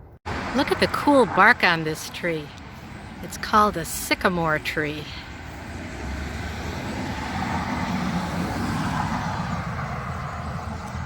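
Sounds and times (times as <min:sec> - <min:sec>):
vehicle passing with tyre hiss: 0:05.0 - 0:11.0.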